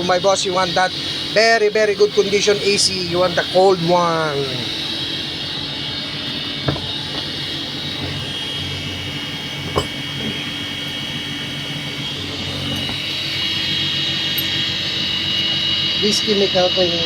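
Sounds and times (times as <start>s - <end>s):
machinery humming with whine: 0.0s - 17.0s
short knocks: 6.3s - 11.3s.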